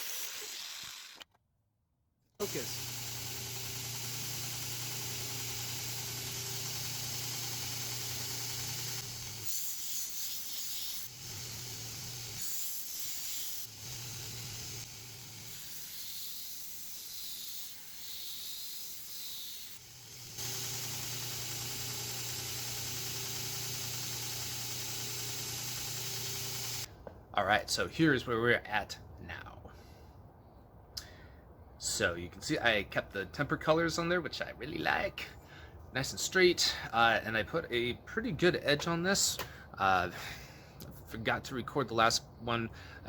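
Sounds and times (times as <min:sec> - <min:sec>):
belt grinder motor hum: 0:00.0 - 0:01.2, 0:02.4 - 0:09.8, 0:10.7 - 0:12.5, 0:13.1 - 0:17.8, 0:18.5 - 0:26.9.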